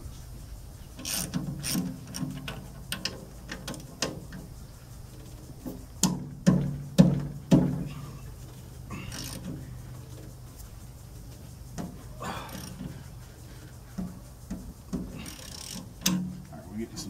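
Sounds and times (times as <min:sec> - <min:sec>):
ratchet wrench clicking: 0:01.0 - 0:04.4, 0:09.1 - 0:09.5, 0:12.4 - 0:12.9, 0:15.1 - 0:16.3
sharp metallic knocks: 0:05.7 - 0:08.1, 0:13.9 - 0:16.5.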